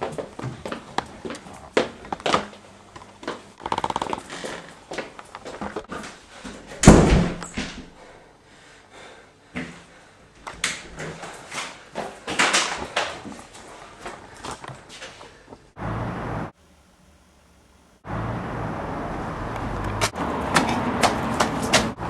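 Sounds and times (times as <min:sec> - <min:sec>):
heavy thud: 0:06.8 - 0:07.9.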